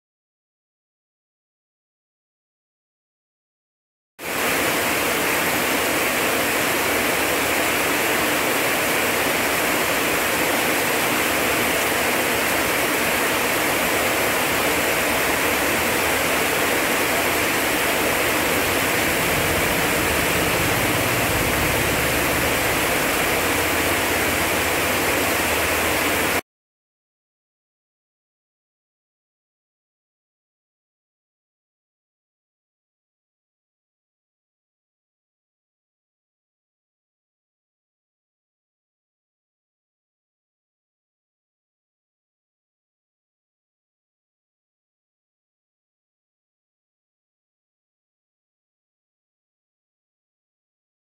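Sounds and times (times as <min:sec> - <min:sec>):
heavy rain pouring: 0:04.2 - 0:26.4
low rumble: 0:17.3 - 0:26.4.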